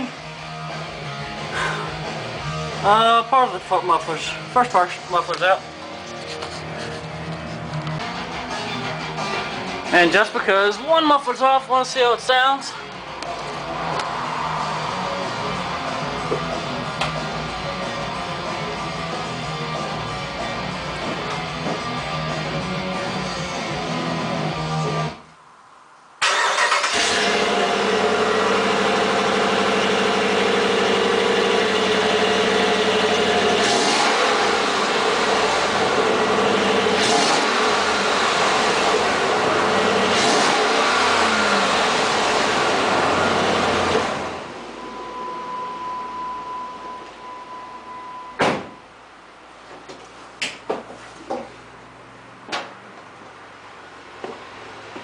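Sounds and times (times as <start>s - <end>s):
guitar music: 0.0s - 10.9s, 12.8s - 25.2s
truck engine running loud: 13.0s - 20.2s, 26.6s - 46.7s.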